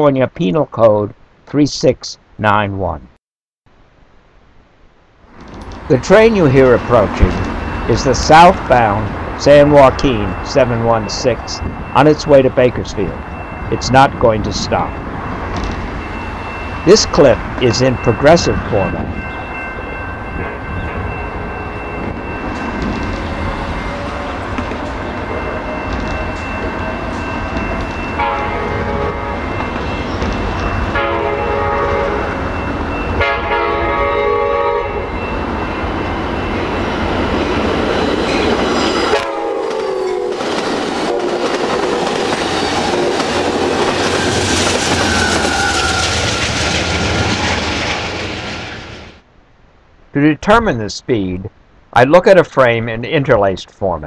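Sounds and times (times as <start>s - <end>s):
train wheels clattering on rails: 6.7s - 8.5s, 21.7s - 31.2s, 37.0s - 48.8s
train horn blasts: 28.1s - 29.6s, 30.9s - 32.4s, 33.2s - 35.3s, 38.9s - 42.2s.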